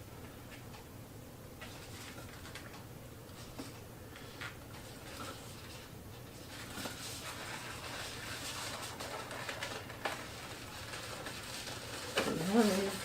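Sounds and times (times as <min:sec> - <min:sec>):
balloons squeaking and rubbing: 0:11.1 - 0:13.0.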